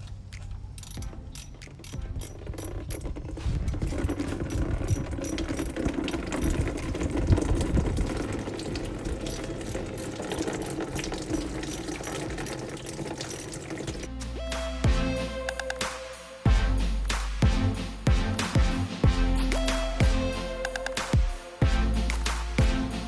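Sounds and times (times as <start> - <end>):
liquid draining into a bucket: 3.1 - 14.1.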